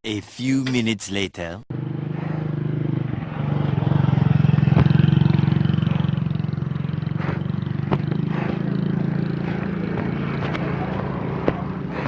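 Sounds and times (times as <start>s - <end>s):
vehicle engine running: 1.7s - 12.0s.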